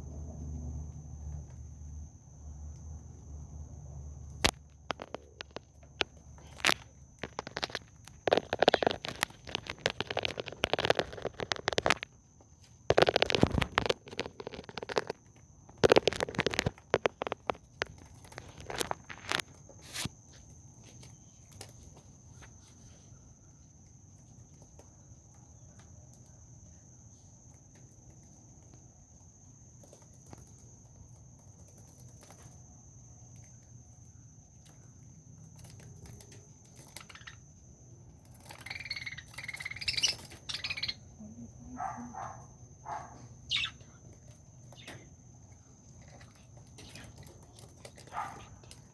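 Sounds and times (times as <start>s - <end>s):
birds chirping and calling: 36.8s - 37.5s, 38.5s - 41.1s, 41.8s - 44.1s, 44.7s - 45.1s.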